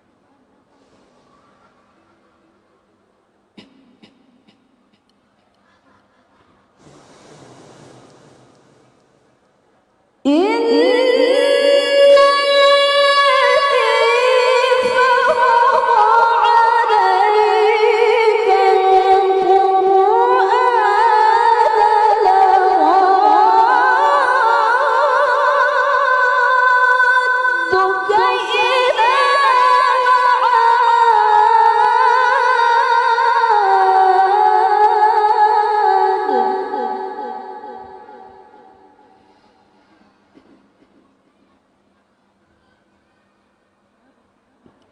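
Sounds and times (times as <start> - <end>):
woman reciting melodically: 10.3 - 39.1.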